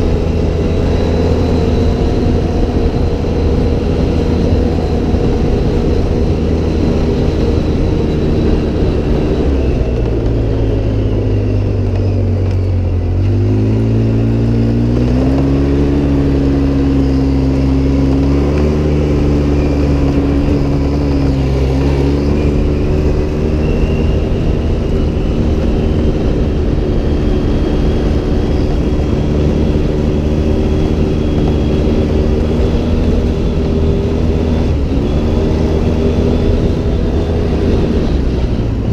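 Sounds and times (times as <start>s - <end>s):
off-road vehicle engine driving: 0.0s - 38.9s.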